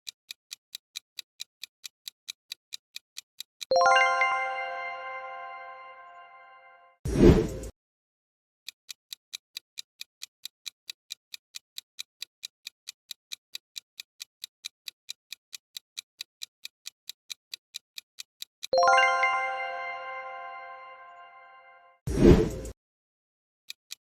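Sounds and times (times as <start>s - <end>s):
clock ticking: 0.0s - 5.6s, 8.9s - 21.2s.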